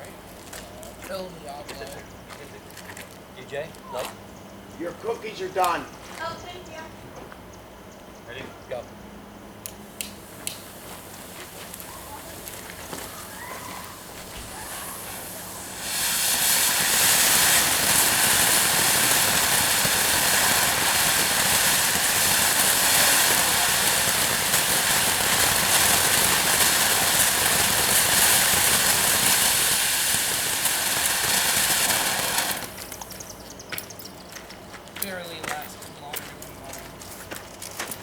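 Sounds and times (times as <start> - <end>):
fountain fireworks hissing sparks: 9.6 - 36.8.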